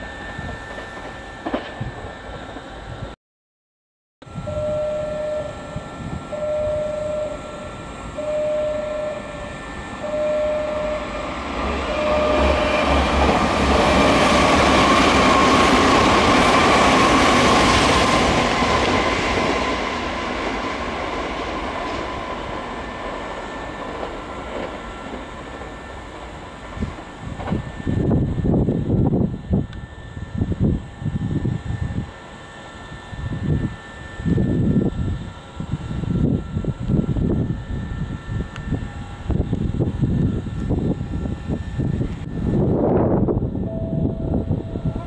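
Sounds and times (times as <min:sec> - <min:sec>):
electric train passing with whine: 0:00.0 - 0:03.2, 0:04.2 - 0:45.0
repeating tone: 0:04.4 - 0:15.8, 0:43.6 - 0:45.0.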